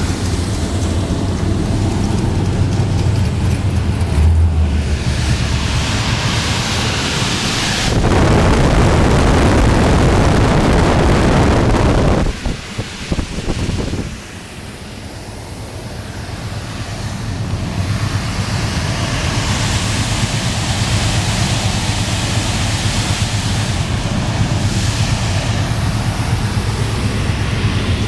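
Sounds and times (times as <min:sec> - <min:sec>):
air rushing: 0:00.0 - 0:14.9, 0:19.8 - 0:28.0.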